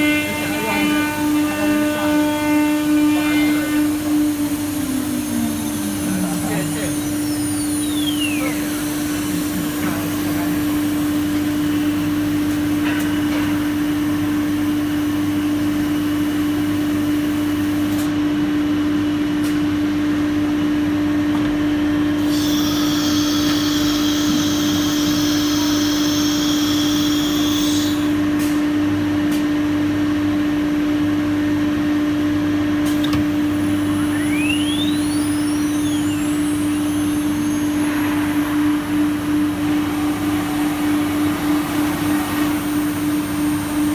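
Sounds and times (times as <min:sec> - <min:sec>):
high whine: 0:00.0 - 0:13.4, 0:33.4 - 0:43.9
machine hum: 0:00.0 - 0:18.0, 0:30.1 - 0:43.9.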